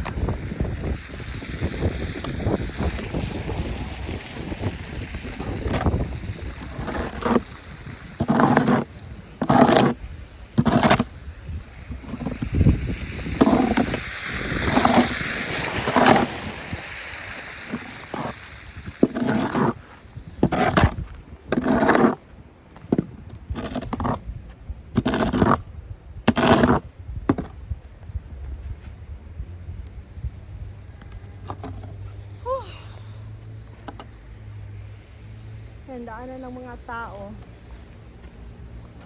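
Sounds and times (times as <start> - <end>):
snow shovel scraping pavement: 0.0 - 27.7, 31.3 - 32.4, 37.4 - 39.0.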